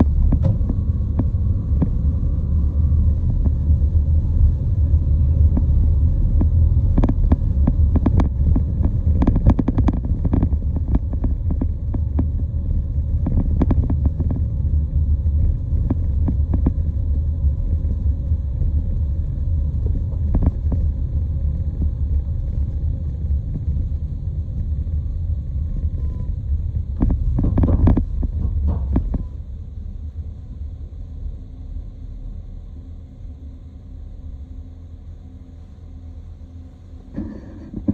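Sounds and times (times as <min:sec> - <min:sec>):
low vehicle rumble: 0:00.0 - 0:37.9.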